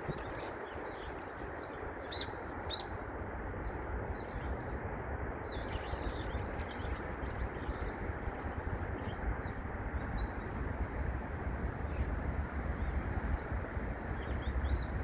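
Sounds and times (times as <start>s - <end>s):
small birds chirping: 5.5s - 15.0s
steady rushing noise: 9.4s - 15.0s.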